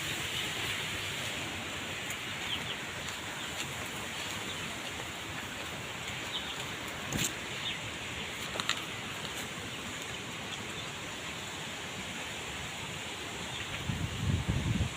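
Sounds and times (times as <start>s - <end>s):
steady hiss: 0.0s - 14.9s.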